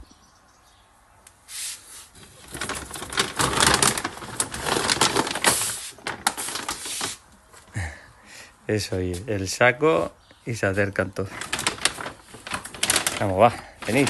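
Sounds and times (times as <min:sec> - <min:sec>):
bag of dry cat food rustling: 0:02.1 - 0:07.2, 0:10.9 - 0:14.0.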